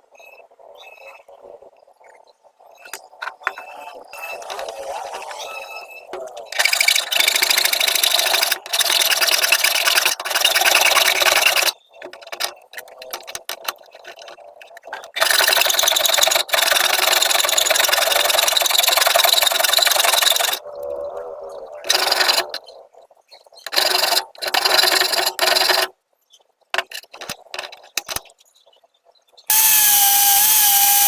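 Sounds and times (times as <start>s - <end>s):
scraping on a hard surface: 2.8s - 20.6s, 21.9s - 22.6s, 23.6s - 25.9s.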